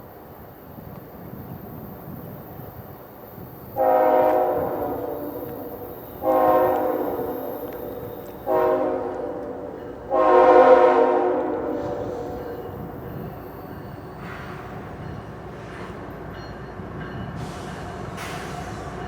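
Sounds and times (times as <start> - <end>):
locomotive horn blasts: 3.8 - 12.8.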